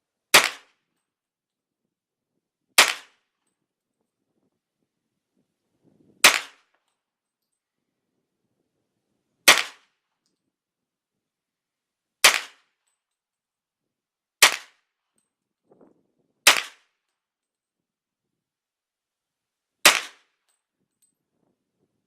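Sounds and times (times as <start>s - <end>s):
rifle shots: 0.4s - 0.7s, 6.2s - 6.6s, 9.5s - 9.8s, 12.2s - 12.6s, 16.5s - 16.8s, 19.9s - 20.2s.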